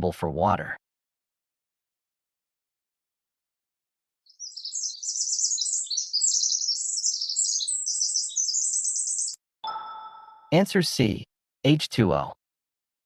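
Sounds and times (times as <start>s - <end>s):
small bird twittering: 4.3s - 9.4s.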